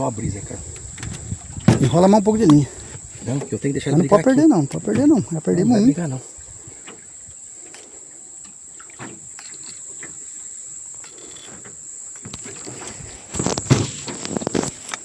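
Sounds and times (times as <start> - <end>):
high-pitched insect drone: 0.0 - 15.0
water sloshing around boat: 0.0 - 15.0
faint knocks: 0.7 - 5.3.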